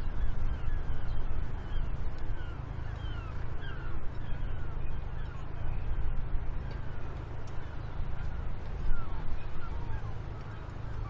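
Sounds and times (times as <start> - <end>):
birds calling: 0.0 - 5.5.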